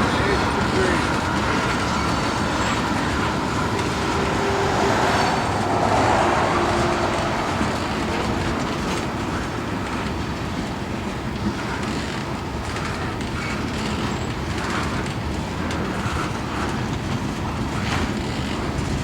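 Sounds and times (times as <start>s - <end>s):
freight train rumbling past: 0.0s - 19.0s.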